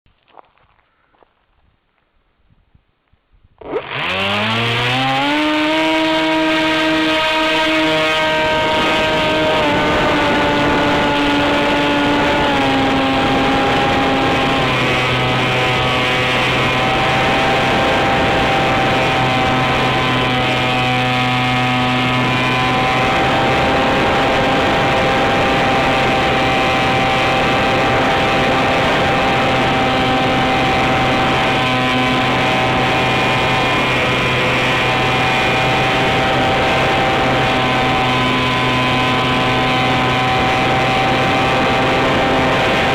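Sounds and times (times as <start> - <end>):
wind noise: 1.5 - 3.7, 5.3 - 42.9
electric motor whine: 3.6 - 42.9.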